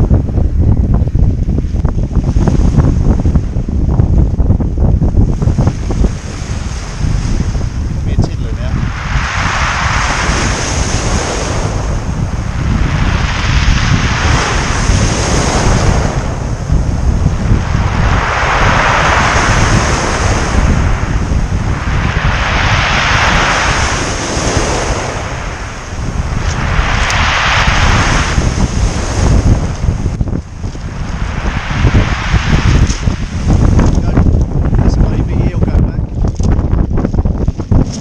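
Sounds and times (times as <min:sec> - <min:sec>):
wind buffeting microphone: 0:00.0 - 0:38.0
sea waves breaking: 0:05.4 - 0:35.0.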